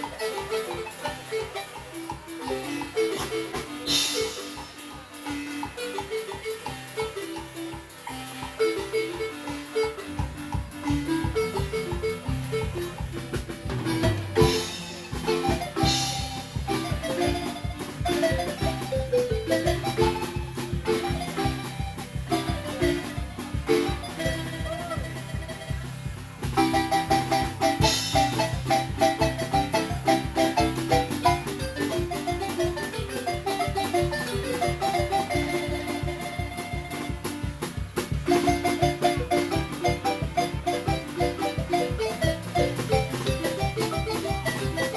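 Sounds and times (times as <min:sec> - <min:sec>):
marimba ensemble playing: 0:00.0 - 0:44.9
pulsing bass beat: 0:11.4 - 0:32.3.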